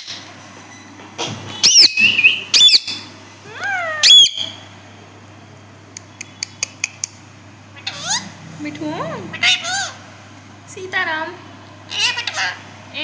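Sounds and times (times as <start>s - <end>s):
parrot squawking: 1.6s - 4.7s, 7.8s - 8.4s, 9.1s - 10.1s, 11.9s - 12.8s.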